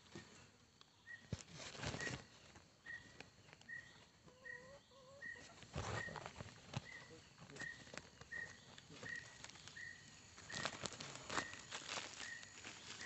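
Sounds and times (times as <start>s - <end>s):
bird chirping: 0.8s - 13.0s
leaves rustling: 1.3s - 3.8s, 5.2s - 13.0s.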